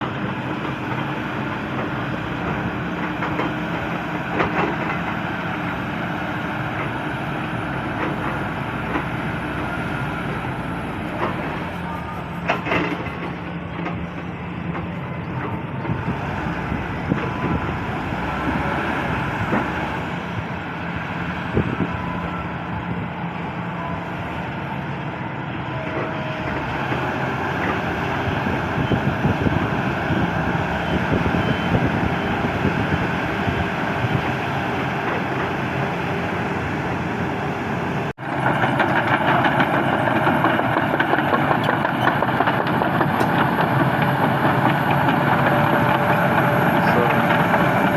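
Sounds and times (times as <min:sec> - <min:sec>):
excavator diesel engine running: 0:00.0 - 0:47.9
machine clanks and rattles: 0:12.4 - 0:16.0, 0:38.3 - 0:47.9.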